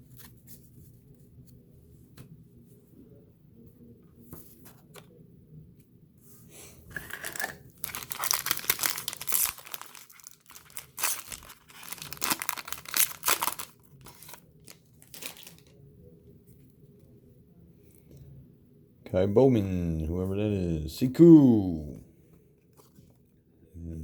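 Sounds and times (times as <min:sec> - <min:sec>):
plastic wrapper tearing and crinkling: 0:07.0 - 0:15.7.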